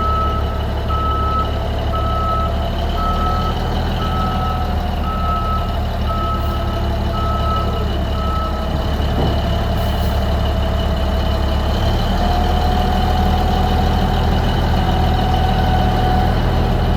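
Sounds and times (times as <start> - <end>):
reverse alarm beeping: 0.0 - 8.6
diesel engine running: 0.0 - 16.9.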